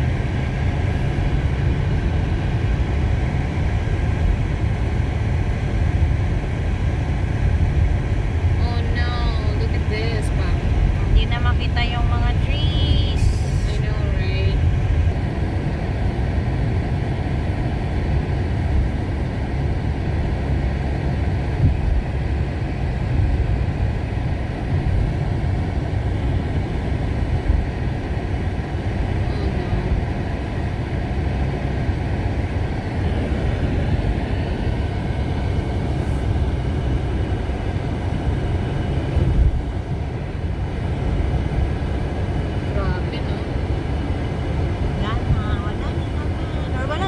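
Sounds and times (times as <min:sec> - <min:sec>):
car interior driving rumble: 0:00.0 - 0:47.0.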